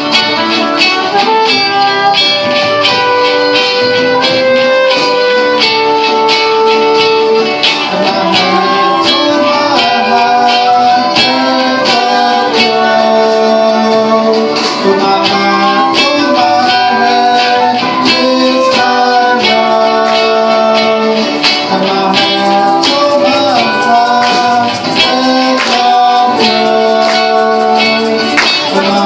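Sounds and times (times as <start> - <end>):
acoustic guitar strumming: 0.0 - 29.0
held melody notes: 21.8 - 29.0.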